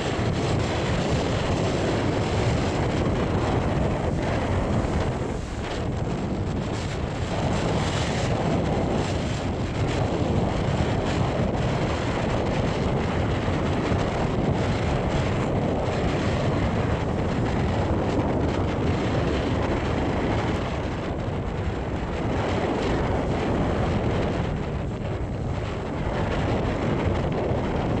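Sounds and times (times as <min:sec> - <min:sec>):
sea surf breaking: 0:00.0 - 0:19.0
wind against microphone: 0:00.0 - 0:28.0.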